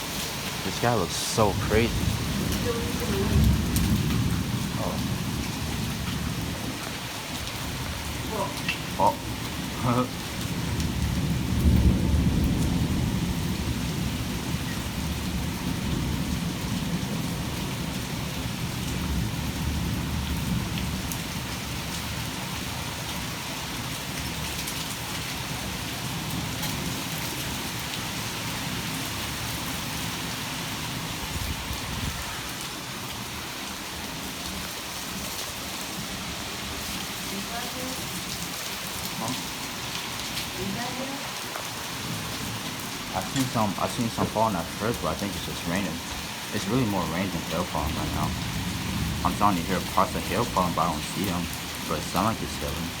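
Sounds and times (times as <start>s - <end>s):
thunder rumbling: 0.0s - 21.9s, 42.0s - 53.0s
heavy rain falling: 0.0s - 53.0s.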